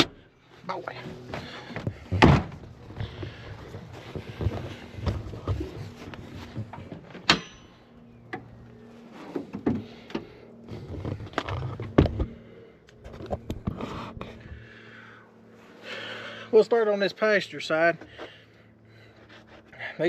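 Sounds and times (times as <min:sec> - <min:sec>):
faint steady hum: 0:00.0 - 0:20.0
car hood knocks and clunks: 0:01.8 - 0:02.8.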